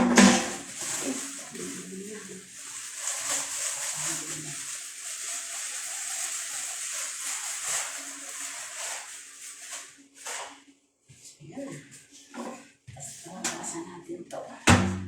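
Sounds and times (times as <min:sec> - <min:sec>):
running water splashing: 0:00.0 - 0:10.6.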